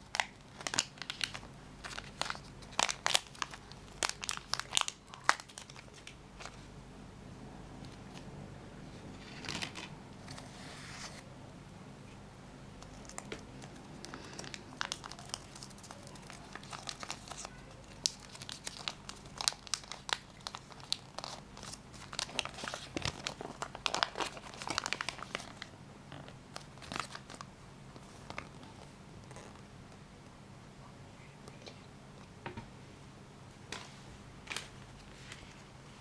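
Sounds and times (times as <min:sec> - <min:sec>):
plastic packaging crinkling: 0:00.0 - 0:06.6, 0:12.8 - 0:25.7, 0:26.5 - 0:27.5.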